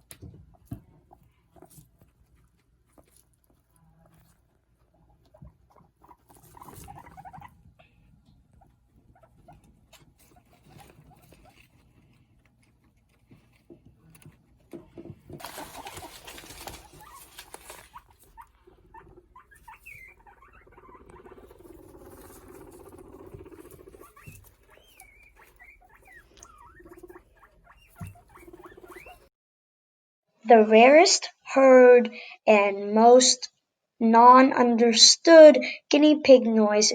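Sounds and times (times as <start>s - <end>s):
light clicks and patter: 0.0s - 18.6s
guinea pigs vocalising: 0.0s - 29.3s
rustling: 0.0s - 29.3s.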